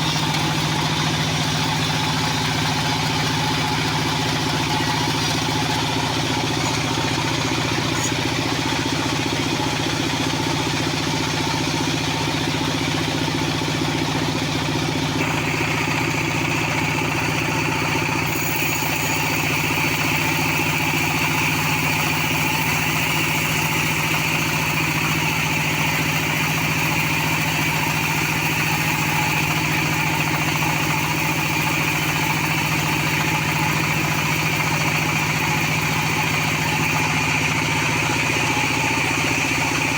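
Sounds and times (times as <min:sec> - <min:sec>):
sawmill engine humming: 0:00.0 - 0:39.9
saw blade cutting wood hiss: 0:18.1 - 0:26.4.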